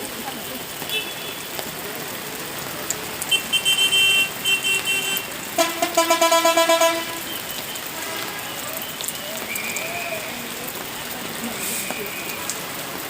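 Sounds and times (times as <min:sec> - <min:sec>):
high-pitched bus horn: 0:03.3 - 0:08.4
low loud bus horn: 0:03.3 - 0:08.5.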